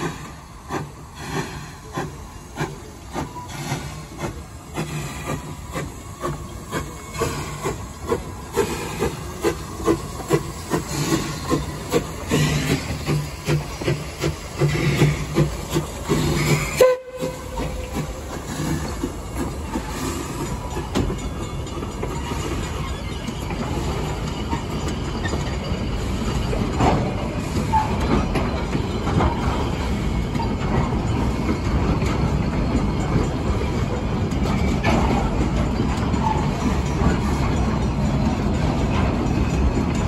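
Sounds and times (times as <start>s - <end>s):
train rumbling past: 0.0s - 40.0s
wheels clacking over rail joints: 0.0s - 40.0s.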